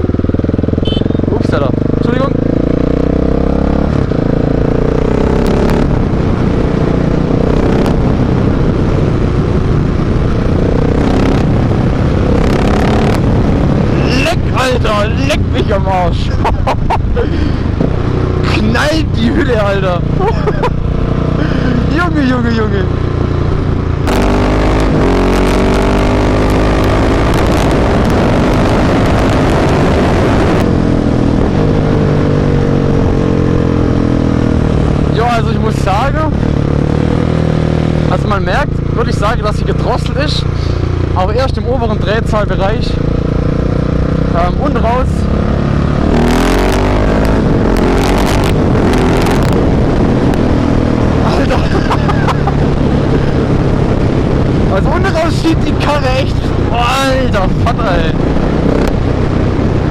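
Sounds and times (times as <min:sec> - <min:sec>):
motorcycle engine riding: 0:00.0 - 0:59.9.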